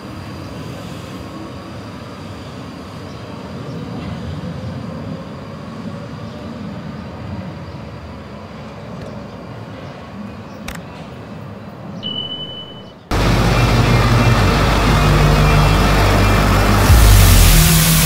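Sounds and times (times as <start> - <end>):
electric train rumbling: 13.1 - 18.0.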